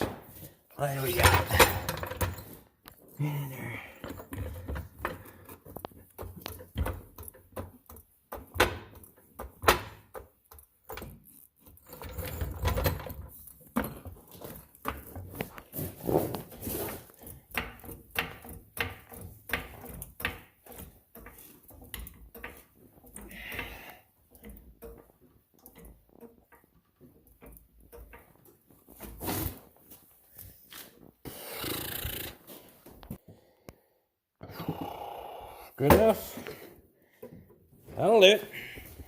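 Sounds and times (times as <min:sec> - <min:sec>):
metal tools clanking: 0:00.8 - 0:07.9
scraping and rummaging: 0:10.7 - 0:23.5.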